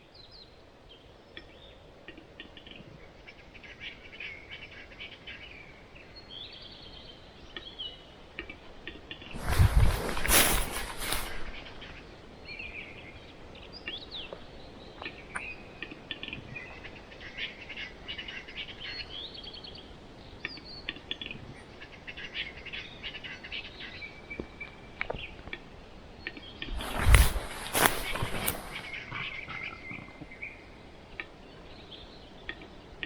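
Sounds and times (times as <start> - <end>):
faint steady hiss: 7.4 - 17.2, 24.2 - 33.0
small birds chirping: 26.2 - 32.7.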